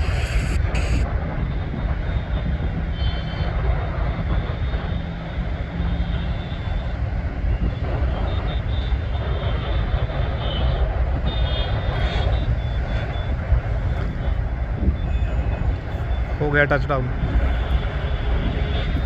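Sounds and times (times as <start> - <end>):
faint high whine: 0.0 - 1.1
jet engines rumbling: 0.0 - 19.0.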